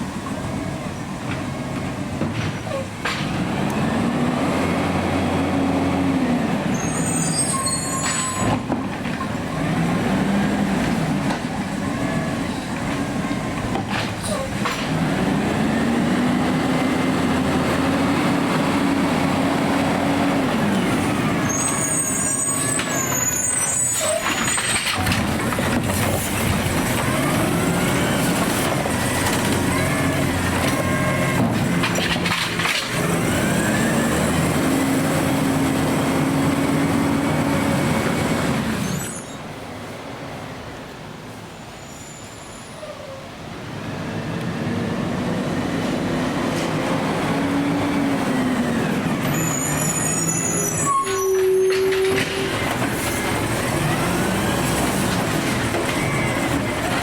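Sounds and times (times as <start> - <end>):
garbage truck engine revving: 0.0 - 39.0, 43.8 - 57.0
thin high squeals: 6.7 - 8.6, 21.4 - 25.0, 38.8 - 39.4, 41.8 - 43.2, 49.2 - 52.7.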